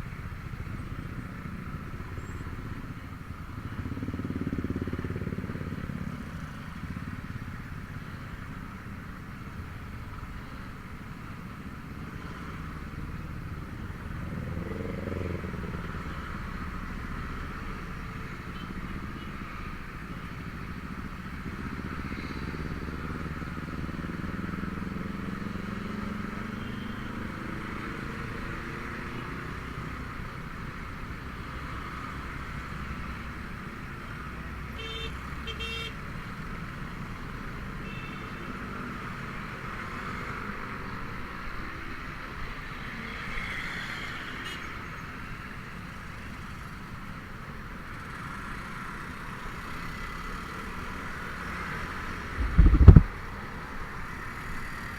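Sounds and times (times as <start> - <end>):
road and traffic noise: 0.0 - 54.9
vehicle horn beeps: 26.6 - 27.2, 34.7 - 36.0, 37.8 - 38.6
scooter engine running: 52.4 - 53.1.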